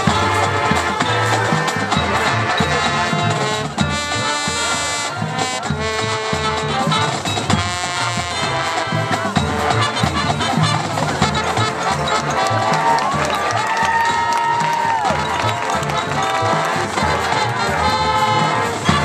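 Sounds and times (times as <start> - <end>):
brass section playing chords: 0.0 - 19.0
drum line beat: 0.0 - 19.0.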